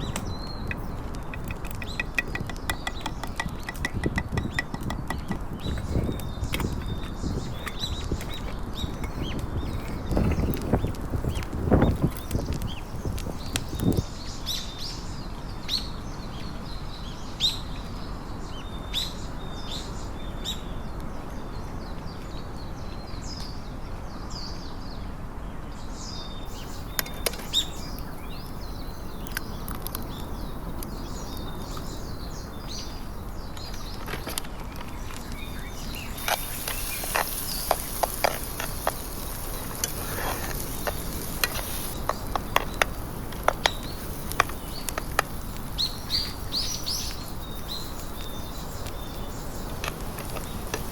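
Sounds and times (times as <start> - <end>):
sharp clicks and taps: 0.0 - 9.2
outdoor background noise: 0.0 - 50.9
small birds chirping: 0.0 - 50.9
high steady hiss: 24.5 - 50.9.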